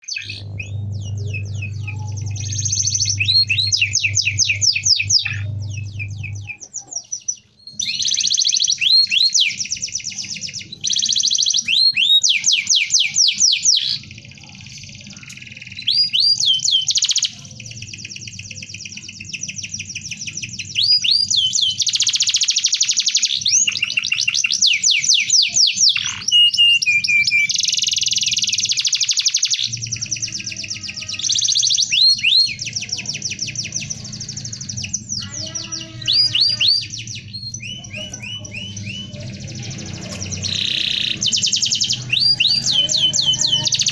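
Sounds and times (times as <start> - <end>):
low steady hum: 0.0 - 7.8
canary singing: 0.0 - 43.9.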